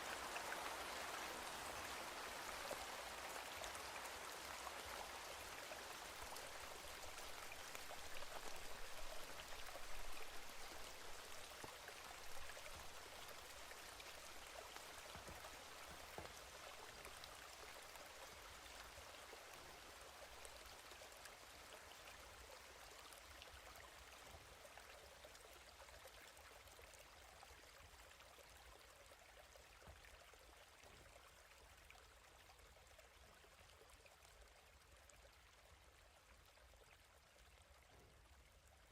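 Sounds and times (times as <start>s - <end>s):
steady rain: 0.0s - 24.4s.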